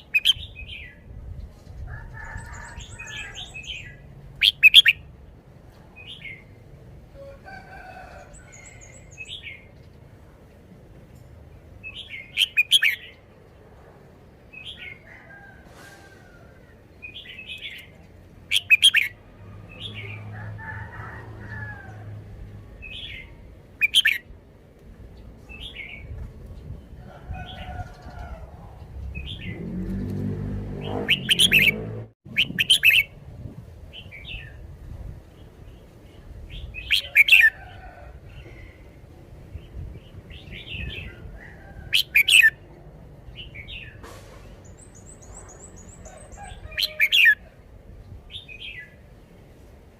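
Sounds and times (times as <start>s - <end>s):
loud sharp bird notes: 30.8s - 33.1s.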